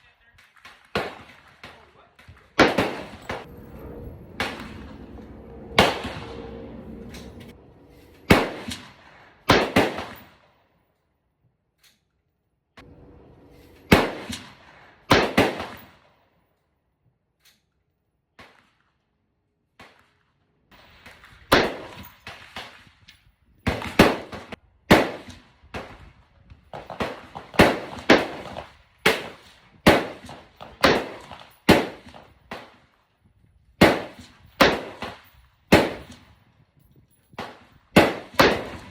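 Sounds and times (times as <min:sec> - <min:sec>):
rifle shots echoing: 0:00.6 - 0:10.5, 0:12.9 - 0:16.0, 0:21.5 - 0:22.8, 0:23.7 - 0:25.9, 0:26.8 - 0:32.8, 0:33.8 - 0:36.3, 0:37.4 - 0:38.9.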